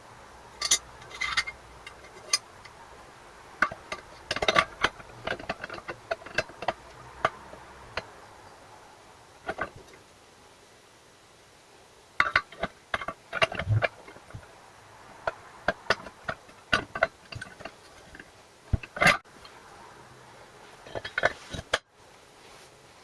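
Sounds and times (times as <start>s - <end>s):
irregular clicks and light knocks: 3.6s - 8.2s, 9.4s - 10.0s, 12.2s - 14.5s, 15.2s - 19.6s.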